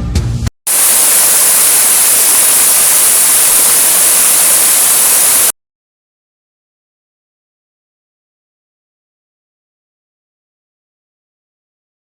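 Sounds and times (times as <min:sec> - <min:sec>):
waterfall rushing: 0:00.7 - 0:05.5.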